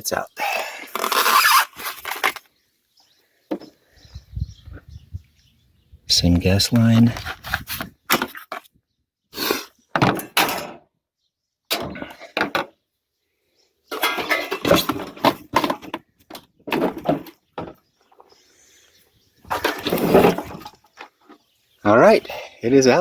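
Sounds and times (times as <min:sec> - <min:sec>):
water heater scraping: 0:19.4 - 0:21.1.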